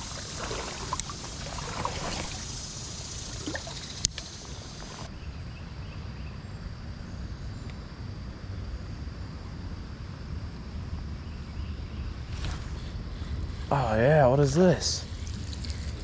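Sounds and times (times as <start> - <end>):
creek water rushing: 0.0 - 5.1.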